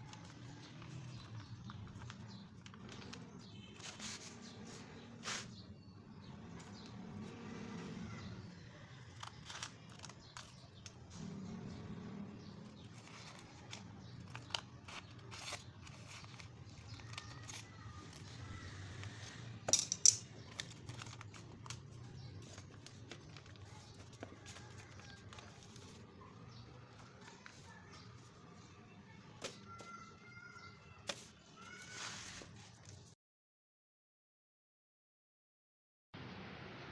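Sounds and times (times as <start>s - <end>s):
sharp paper clicks: 0.0s - 5.5s, 8.6s - 11.1s, 12.6s - 28.6s
paper being folded: 0.0s - 5.7s, 6.3s - 33.2s.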